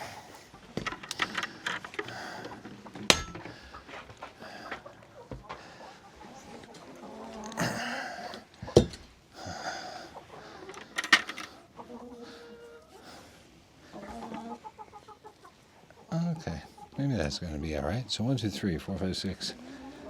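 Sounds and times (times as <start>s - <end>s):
chickens wheezy calls: 0.0s - 20.0s
sharp knocks: 3.0s - 3.6s, 8.7s - 9.1s.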